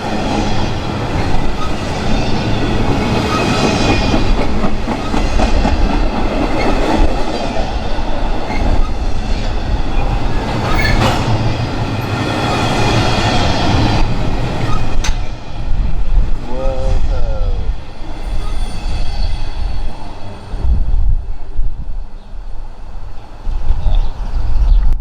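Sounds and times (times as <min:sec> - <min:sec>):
train wheels clicking over rails: 0:00.0 - 0:15.4.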